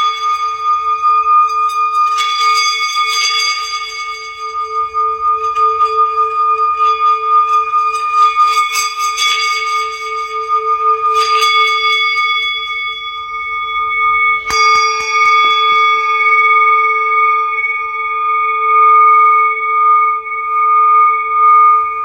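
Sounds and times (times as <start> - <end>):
singing bowls ringing: 0.0 - 22.0.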